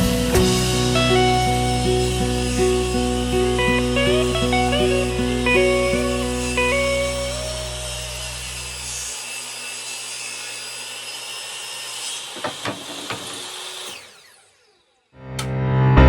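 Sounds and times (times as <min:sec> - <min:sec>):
music: 0:00.0 - 0:08.5, 0:15.2 - 0:16.0
hand tool scraping wood: 0:12.0 - 0:14.0
sharp knocks: 0:12.4 - 0:13.4.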